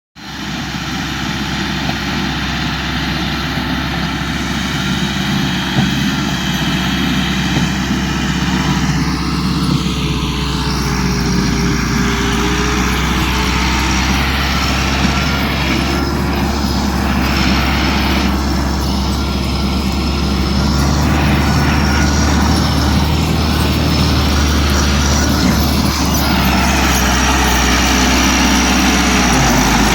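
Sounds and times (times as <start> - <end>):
tractor diesel engine drone: 0.2 - 29.9.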